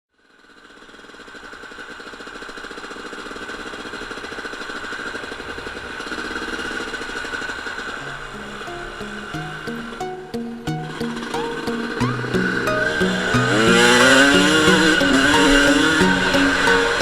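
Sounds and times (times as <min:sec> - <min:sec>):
two-stroke motocross engine running: 0:00.2 - 0:17.0
music: 0:08.0 - 0:17.0.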